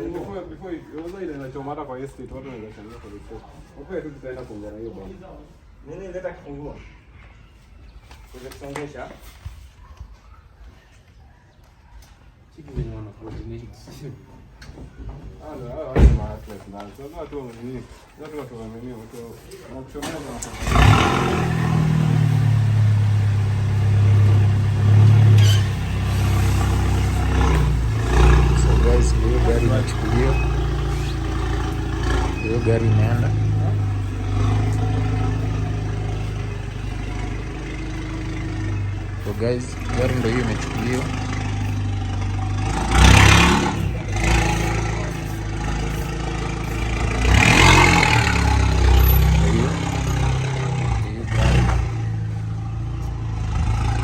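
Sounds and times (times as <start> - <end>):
vehicle engine running: 20.3 - 54.0.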